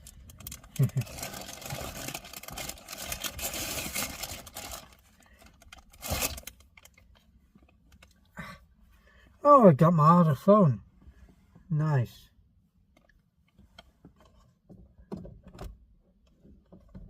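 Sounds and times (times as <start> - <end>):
rustling belongings: 0.0 - 8.9.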